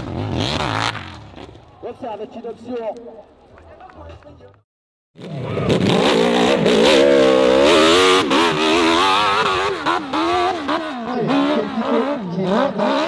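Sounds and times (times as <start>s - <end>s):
motorcycle engine revving: 0.0s - 1.6s, 5.2s - 13.0s.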